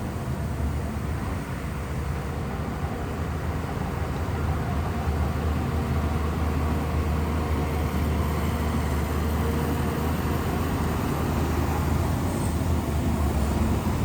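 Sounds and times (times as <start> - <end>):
bulldozer diesel engine rumbling: 0.0 - 14.0.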